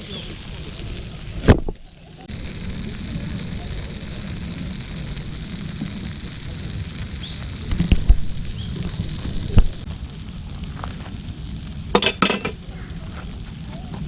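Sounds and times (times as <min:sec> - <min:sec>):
faint hiss: 0:00.0 - 0:14.0
low rumble: 0:01.6 - 0:12.0.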